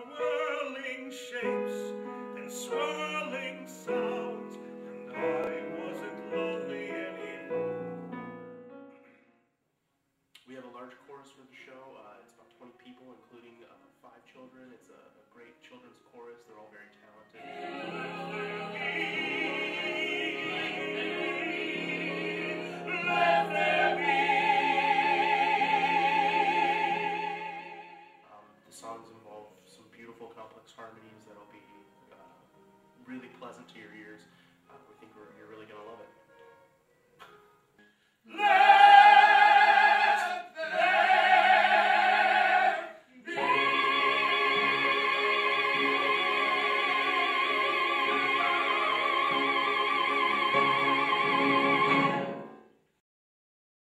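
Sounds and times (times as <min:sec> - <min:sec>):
choir singing in harmony: 0:00.0 - 0:08.2, 0:17.4 - 0:28.2, 0:38.3 - 0:52.8
high voice singing with vibrato: 0:38.3 - 0:52.3.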